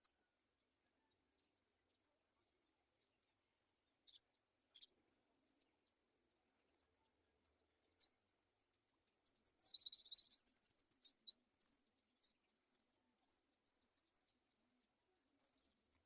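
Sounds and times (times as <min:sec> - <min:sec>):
high thin bird chirps: 0:09.2 - 0:14.6
bird chittering: 0:09.3 - 0:14.3.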